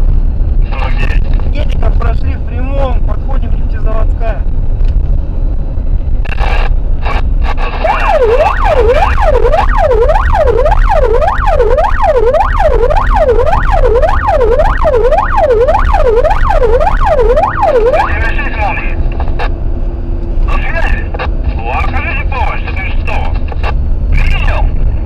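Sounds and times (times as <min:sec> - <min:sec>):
engine and road rumble: 0:00.0 - 0:25.0
siren yelping: 0:07.8 - 0:18.8.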